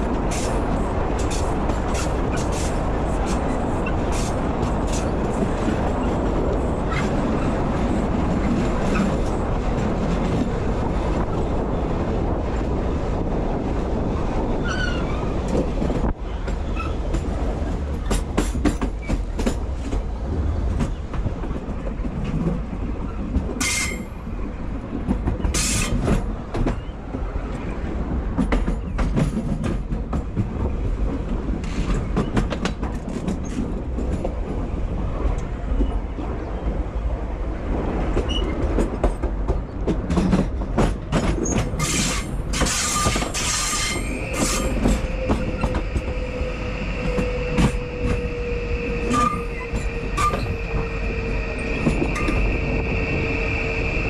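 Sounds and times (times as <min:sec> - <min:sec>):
train rumbling on rails: 0:00.0 - 0:54.0
wheel squeal: 0:41.4 - 0:54.0.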